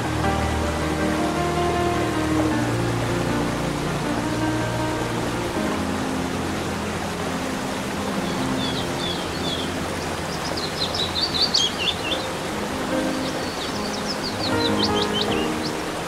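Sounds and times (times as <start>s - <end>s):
steady hiss: 0.0s - 16.0s
songbirds chirping: 7.0s - 16.0s.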